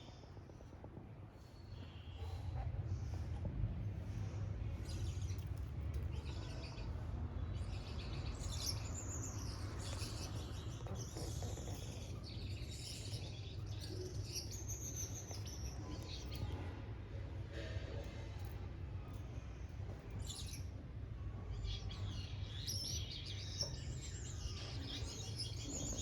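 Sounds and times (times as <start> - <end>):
finches chirping and twittering: 4.0 - 16.7, 19.2 - 20.8, 21.5 - 26.0.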